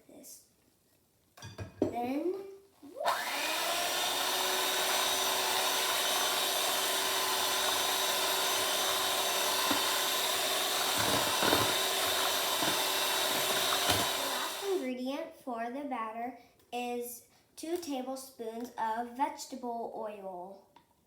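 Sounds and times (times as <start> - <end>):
electric mixer running: 3.0 - 14.8.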